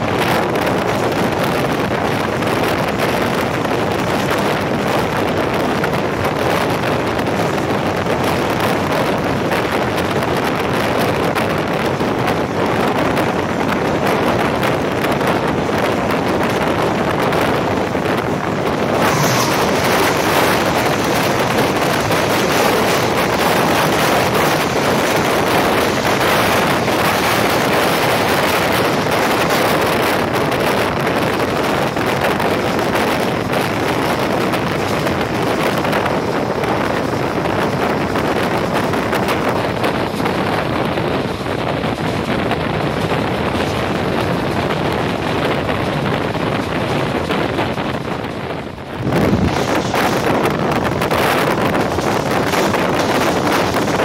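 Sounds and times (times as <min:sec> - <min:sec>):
passenger train running: 0:00.0 - 0:54.0
wind on microphone: 0:00.0 - 0:54.0
freight train passing close: 0:16.8 - 0:29.4.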